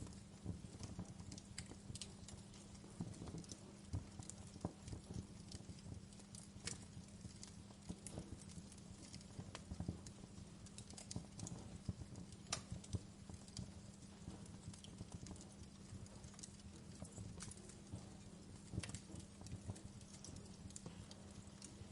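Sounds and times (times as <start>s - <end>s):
faint steady hum: 0.0s - 21.9s
wood fire crackling and popping: 0.0s - 21.9s.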